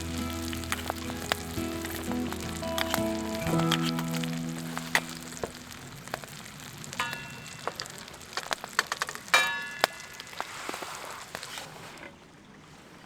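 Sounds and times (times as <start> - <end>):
background music: 0.0 - 5.9
steak sizzling over fire: 0.0 - 11.9
fire crackles: 0.0 - 12.0.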